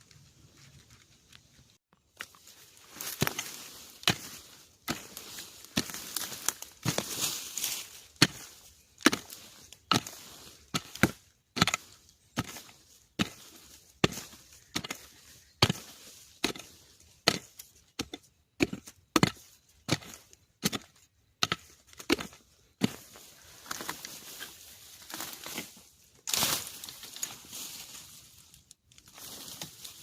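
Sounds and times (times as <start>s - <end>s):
tool chopping into bamboo: 7.7s - 23.1s.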